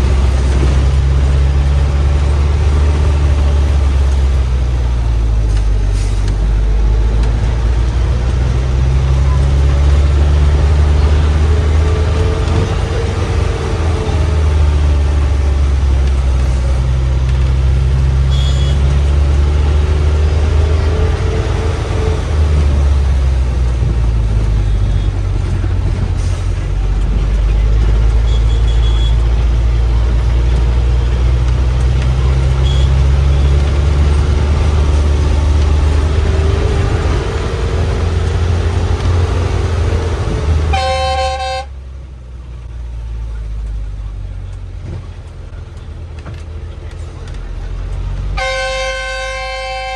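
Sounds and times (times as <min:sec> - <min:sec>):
bus engine droning: 0:00.0 - 0:49.9
vehicle horn blast: 0:18.2 - 0:19.1, 0:28.3 - 0:29.2, 0:32.6 - 0:33.4, 0:40.6 - 0:41.8, 0:48.4 - 0:49.9.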